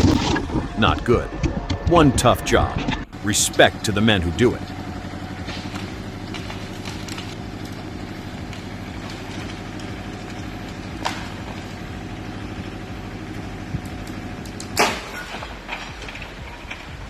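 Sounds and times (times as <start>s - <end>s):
heavy vehicle engine running: 0.0s - 17.0s.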